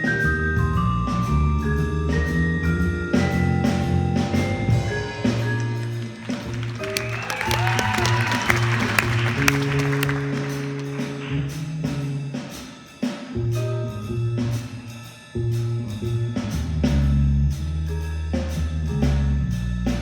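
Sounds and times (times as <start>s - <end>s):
vibraphone: 0.0s - 7.0s
bass guitar: 0.0s - 12.6s, 13.3s - 20.0s
drum kit with cymbals: 0.0s - 20.0s.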